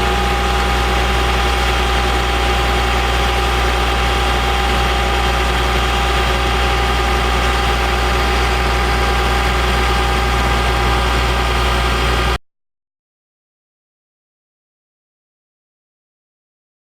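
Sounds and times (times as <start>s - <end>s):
diesel engine idling: 0.0s - 12.4s.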